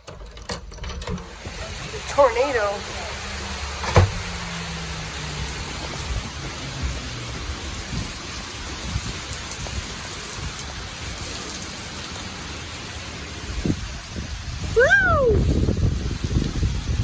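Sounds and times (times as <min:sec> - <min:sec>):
heavy rain pouring: 0:00.4 - 0:17.0
low uneven rumble: 0:01.2 - 0:10.9.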